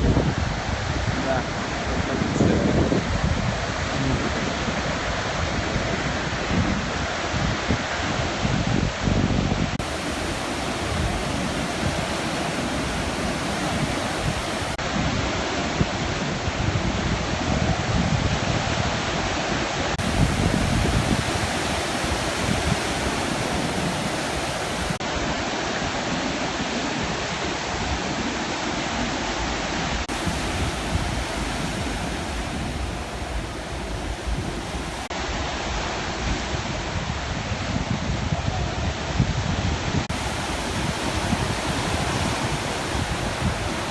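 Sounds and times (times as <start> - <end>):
waves breaking on shore: 9.7 - 37.9, 38.5 - 43.9.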